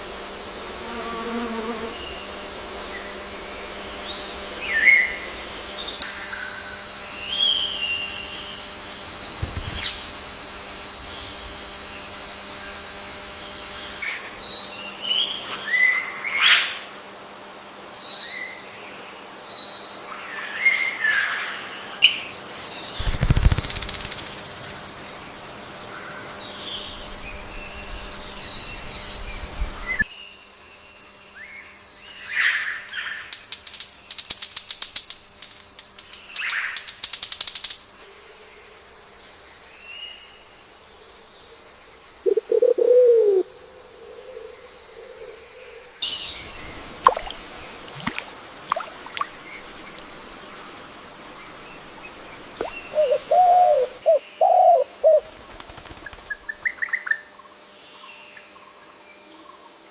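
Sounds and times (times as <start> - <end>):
wing flapping: 9.0 - 12.5, 22.9 - 24.8, 33.3 - 37.9, 55.2 - 56.7
rapid sharp clicks: 23.0 - 24.6, 33.3 - 37.9
bird calls and chirps: 52.6 - 55.3.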